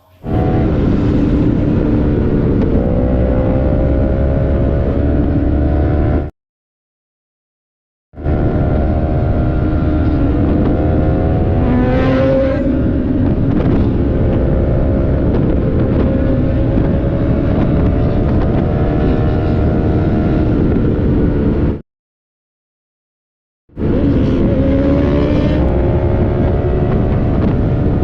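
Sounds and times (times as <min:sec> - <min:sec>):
wind noise on microphone: 0:00.0 - 0:06.3, 0:08.2 - 0:21.8, 0:23.8 - 0:28.0
motorcycle engine cruising: 0:00.2 - 0:06.3, 0:08.2 - 0:21.8, 0:23.8 - 0:28.0
second engine rising in pitch: 0:23.8 - 0:27.9.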